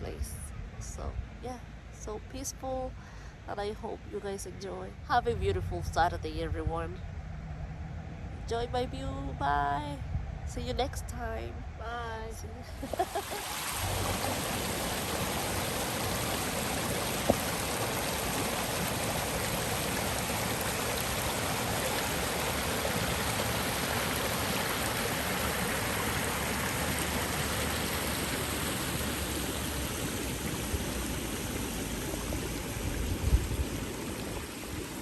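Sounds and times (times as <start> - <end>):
flowing water rushing: 12.8 - 35.0.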